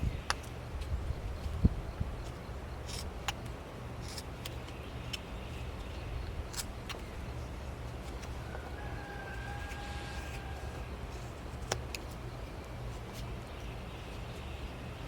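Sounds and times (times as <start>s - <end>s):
low steady hum: 0.0s - 15.0s
carving knife cutting wood: 2.8s - 3.4s, 4.0s - 5.2s, 9.3s - 12.1s.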